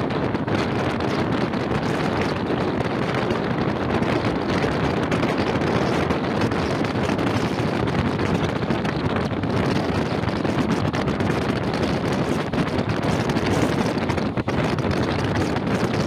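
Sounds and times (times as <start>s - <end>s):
train wheels rumbling on rails: 0.0s - 16.0s
wind rushing past microphone: 0.0s - 16.0s.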